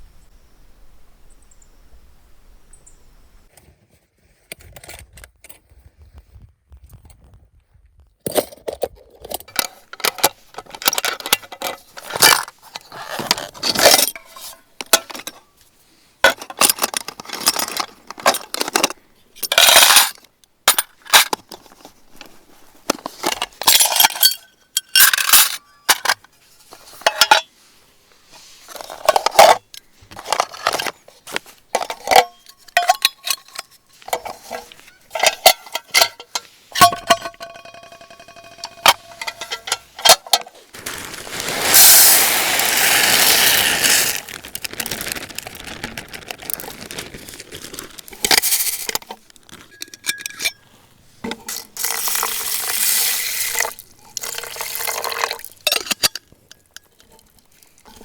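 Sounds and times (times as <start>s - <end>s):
metal objects clinking: 8.3s - 15.4s, 16.3s - 21.5s, 23.2s - 27.5s, 31.7s - 45.8s, 46.4s - 50.7s, 51.3s - 58.0s.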